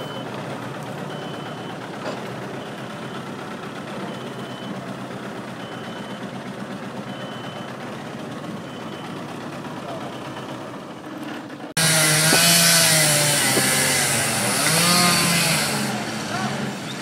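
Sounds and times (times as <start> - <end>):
reversing alarm beeping: 0.0 - 0.4, 1.0 - 4.9, 5.5 - 7.8, 8.6 - 10.6
diesel engine running: 0.0 - 17.0.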